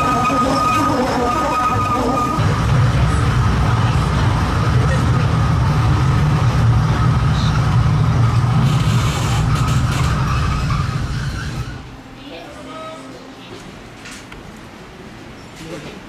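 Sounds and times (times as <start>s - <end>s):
train wheels rumbling on track: 0.0s - 11.9s.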